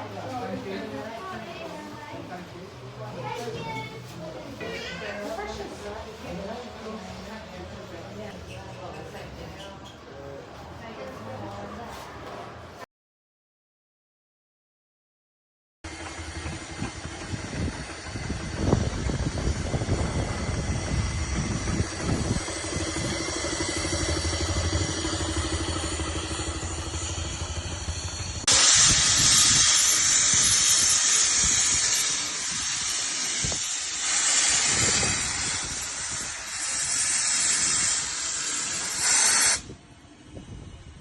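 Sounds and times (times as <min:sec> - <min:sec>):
loud steam hiss: 0:15.9 - 0:41.0
steam engine rumble: 0:15.9 - 0:41.0.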